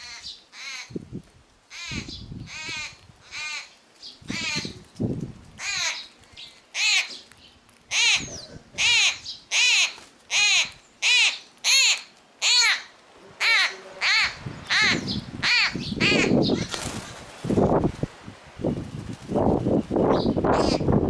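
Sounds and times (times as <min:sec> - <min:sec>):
young bird begging calls: 0:04.3 - 0:04.8, 0:07.9 - 0:16.7.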